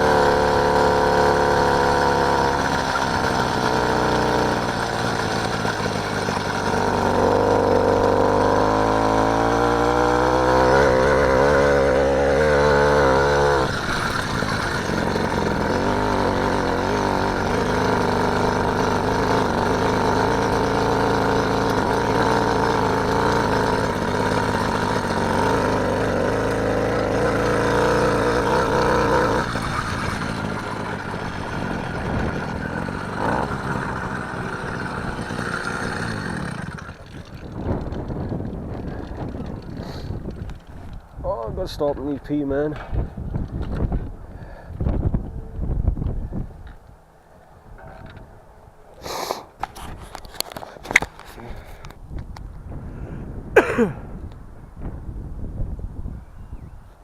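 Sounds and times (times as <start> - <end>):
small motorbike engine running: 0.0 - 46.1, 47.8 - 48.2, 49.0 - 51.9.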